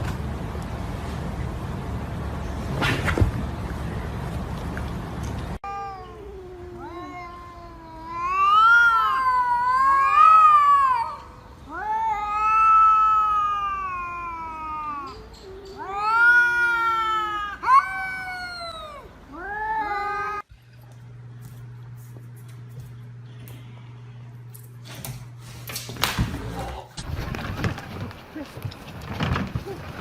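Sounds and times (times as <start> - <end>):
cat yowling: 5.6 - 20.4.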